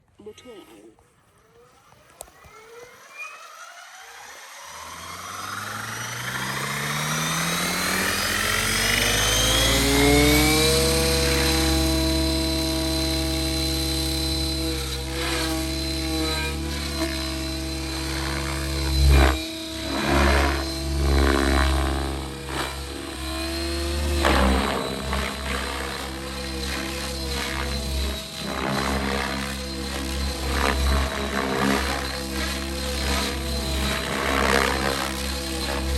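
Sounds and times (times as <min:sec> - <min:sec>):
rc helicopter motor whine: 0:01.0 - 0:35.9.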